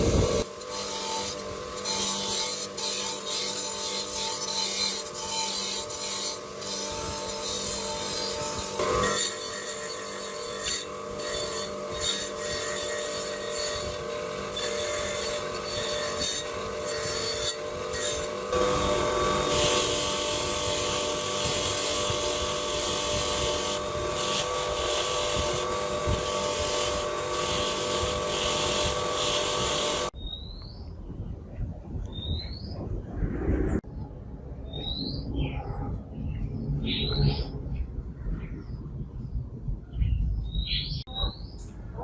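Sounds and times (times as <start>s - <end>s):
power tool scraping workpiece: 0.0s - 30.2s
bird chirping: 30.2s - 31.2s, 32.1s - 32.9s, 34.6s - 41.8s.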